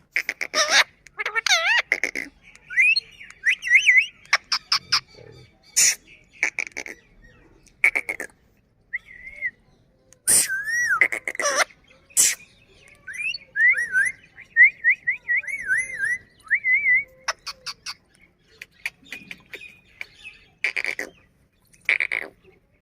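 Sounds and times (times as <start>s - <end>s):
parakeet harsh squawk: 0.2s - 5.1s, 10.3s - 14.2s, 18.8s - 21.2s, 21.9s - 22.4s.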